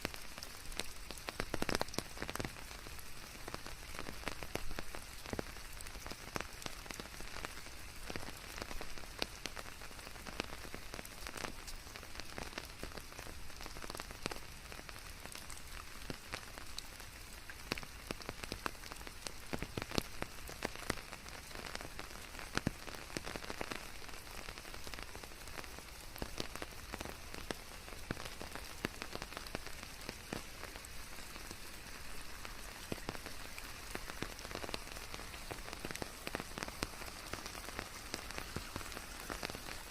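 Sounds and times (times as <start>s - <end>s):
rain hissing: 0.0s - 39.9s
raindrops ticking on surfaces: 0.0s - 39.9s.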